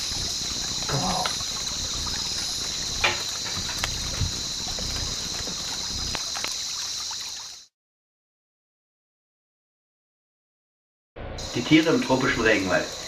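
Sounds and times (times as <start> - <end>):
insect chorus buzzing: 0.0 - 7.7, 11.4 - 13.0.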